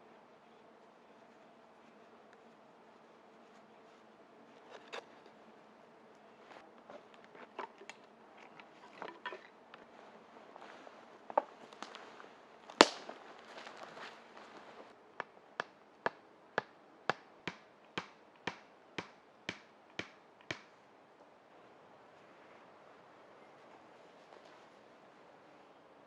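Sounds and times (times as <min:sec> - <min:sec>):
rustling: 0:00.5 - 0:15.0
sharp crack: 0:12.7 - 0:13.2
tool knocking on wood: 0:15.2 - 0:20.7.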